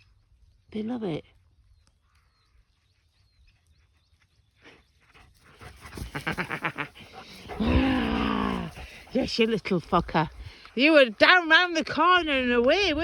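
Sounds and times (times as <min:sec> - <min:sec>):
dog panting: 0:05.1 - 0:11.2.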